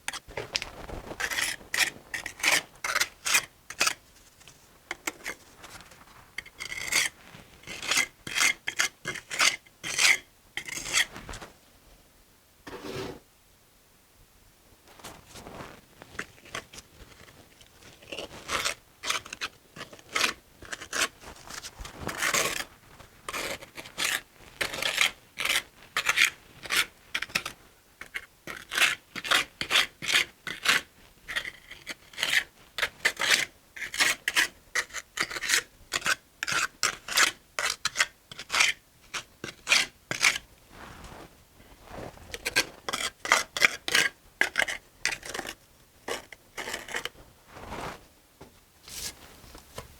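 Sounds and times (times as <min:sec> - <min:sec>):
trowel scraping mortar on brick: 0:01.2 - 0:04.0, 0:06.4 - 0:11.1, 0:12.7 - 0:13.2, 0:18.0 - 0:21.1, 0:22.1 - 0:22.7, 0:23.3 - 0:40.4, 0:42.3 - 0:47.9.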